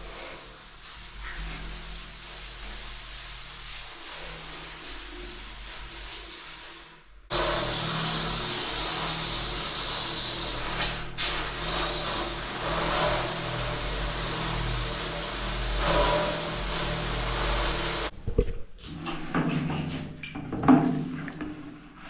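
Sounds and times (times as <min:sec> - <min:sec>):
steady hum: 0:07.3 - 0:18.1
water spraying from hose: 0:07.3 - 0:18.1.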